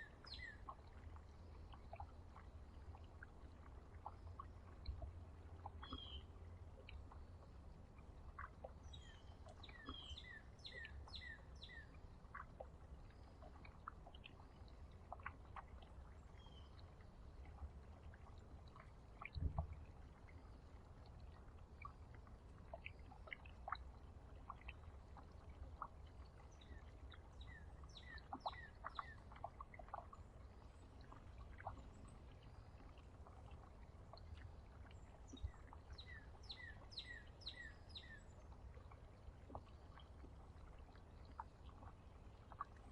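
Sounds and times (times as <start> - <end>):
small birds chirping: 0.0 - 1.0, 5.6 - 6.3, 8.4 - 12.4, 26.4 - 30.1, 35.1 - 38.3
low steady rumble: 0.0 - 42.9.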